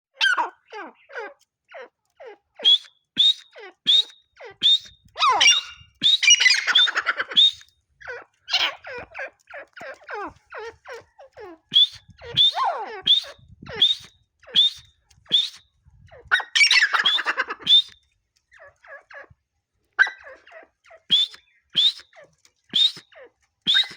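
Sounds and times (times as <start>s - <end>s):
bird calling sharp notes: 2.6s - 7.7s, 8.5s - 15.6s, 16.3s - 18.0s, 21.1s - 23.1s, 23.7s - 23.9s.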